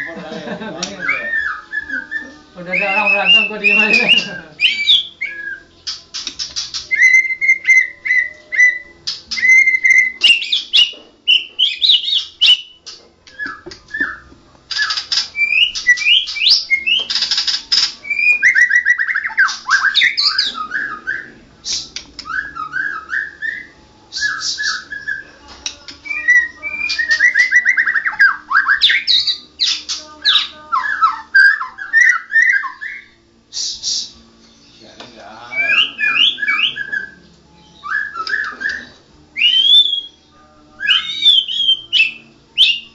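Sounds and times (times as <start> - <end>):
bird singing whistled song: 0.8 - 42.9.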